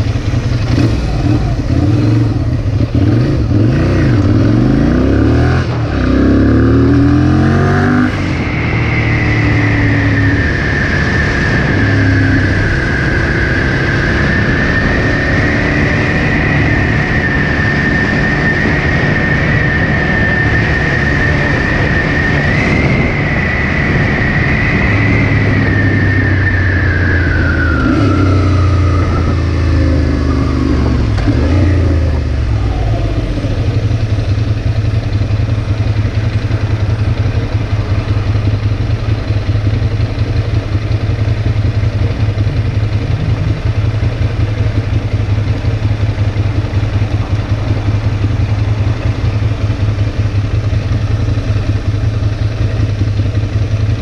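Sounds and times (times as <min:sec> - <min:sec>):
motorcycle engine: 0:00.0 - 0:54.0
wind rush: 0:07.5 - 0:38.3.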